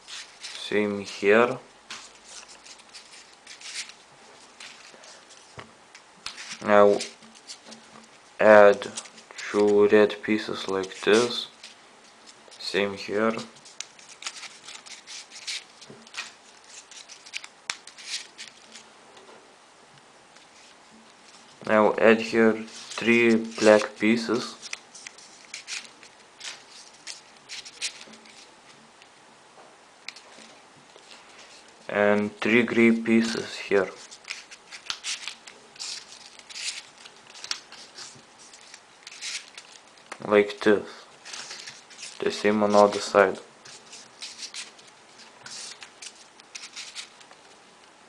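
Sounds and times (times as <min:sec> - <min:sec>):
paper rustling and scraping: 0:00.0 - 0:01.2, 0:01.9 - 0:05.6, 0:06.2 - 0:18.9, 0:22.2 - 0:28.5, 0:30.1 - 0:47.6.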